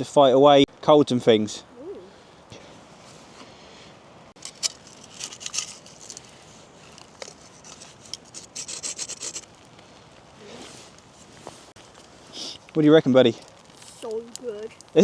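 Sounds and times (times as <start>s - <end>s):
toasted bread crunching: 4.4s - 15.0s.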